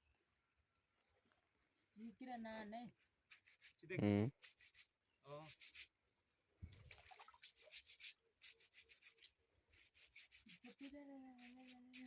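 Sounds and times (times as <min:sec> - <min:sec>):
wet clothes scrubbed by hand: 0:06.8 - 0:12.0.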